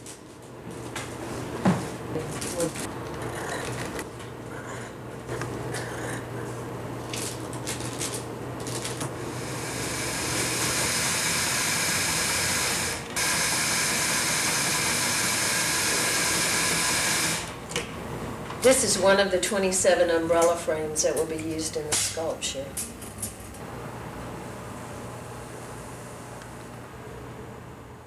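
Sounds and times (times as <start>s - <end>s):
small motor tool hissing: 9.2s - 17.5s.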